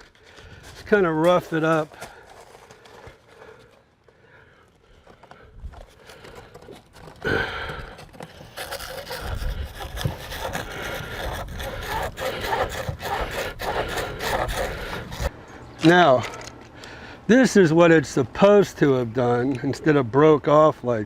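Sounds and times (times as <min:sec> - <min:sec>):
abrasive scraping on pipe: 0:00.0 - 0:03.8, 0:05.1 - 0:15.4.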